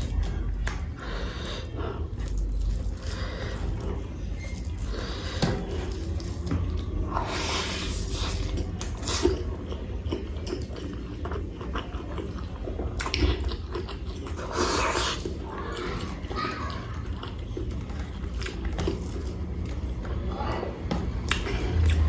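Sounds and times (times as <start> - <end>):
wet chewing and biting: 0.0 - 22.0.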